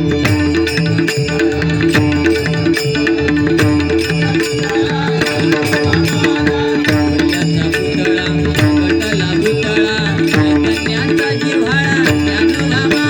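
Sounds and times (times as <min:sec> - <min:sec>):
devotional music with drums: 0:00.0 - 0:13.0.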